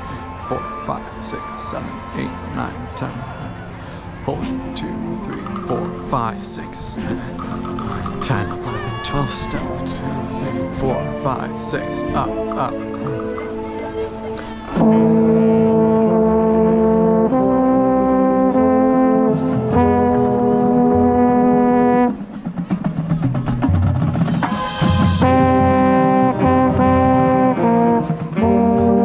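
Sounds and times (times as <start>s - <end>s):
brass band chords: 0.0s - 23.0s, 23.7s - 29.0s
low brass horn: 4.5s - 22.4s, 24.4s - 29.0s
drums: 19.3s - 29.0s.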